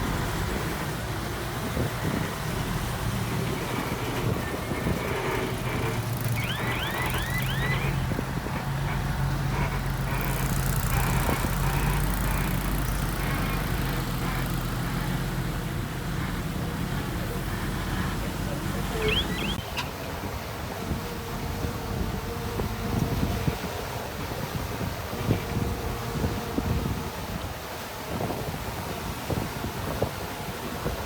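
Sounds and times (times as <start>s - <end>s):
diesel machinery engine running: 0.0s - 19.9s
quick high chirps: 6.3s - 8.0s, 19.0s - 19.8s.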